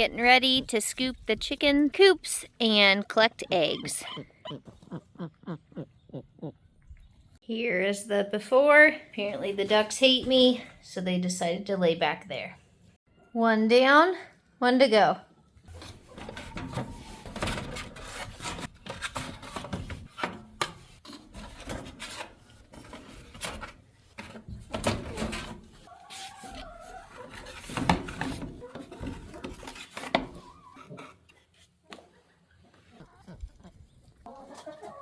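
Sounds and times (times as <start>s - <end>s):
scoop scraping coop bedding: 15.7s - 35.0s.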